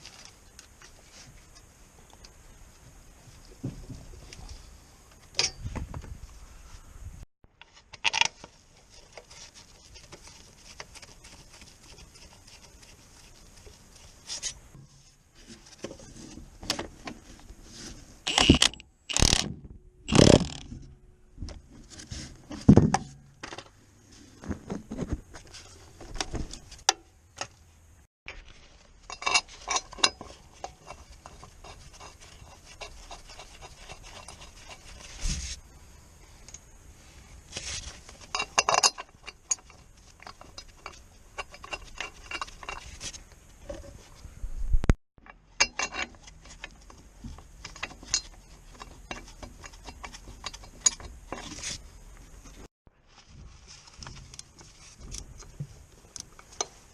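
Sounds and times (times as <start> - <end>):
hand tools and metal parts clanking: 3.6 - 6.2, 7.6 - 23.8, 28.3 - 35.6, 37.5 - 44.1, 45.2 - 52.7, 53.8 - 56.9.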